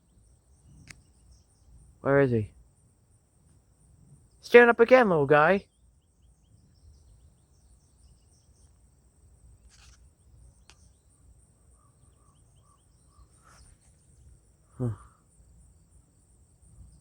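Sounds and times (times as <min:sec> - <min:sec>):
high insect trill: 0:00.0 - 0:17.0
short bird chirps: 0:11.8 - 0:15.2.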